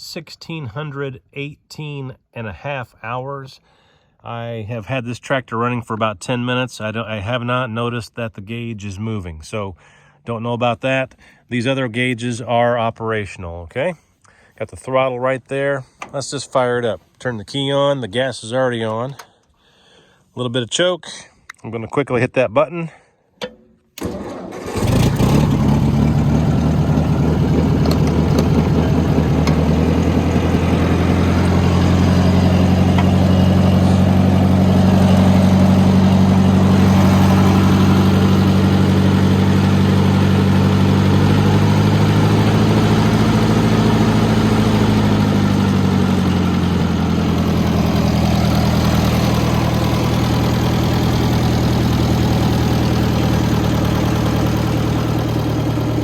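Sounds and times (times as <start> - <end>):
tractor engine starting and idling: 23.4 - 56.0.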